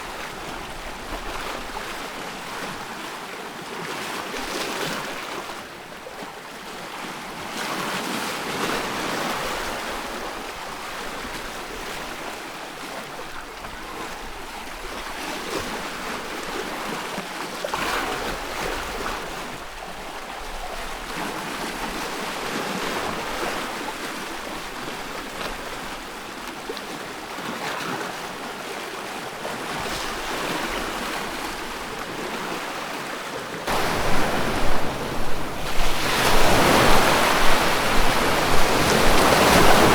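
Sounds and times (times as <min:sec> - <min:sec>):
ocean waves breaking: 0:28.2 - 0:39.9.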